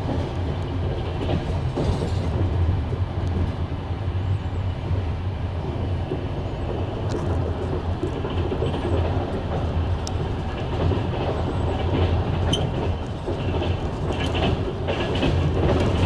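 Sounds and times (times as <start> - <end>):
wheels clicking over rail joints: 0.0 - 3.6, 6.0 - 16.0
train rumbling on rails: 0.0 - 16.0.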